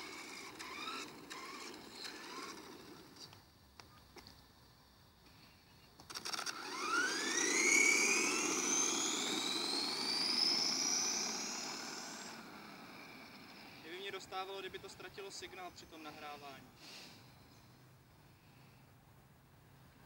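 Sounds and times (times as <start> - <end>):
drivetrain and tyres rushing: 0.0 - 3.4, 6.1 - 15.1
electric motor whining: 0.0 - 3.4, 6.0 - 14.1.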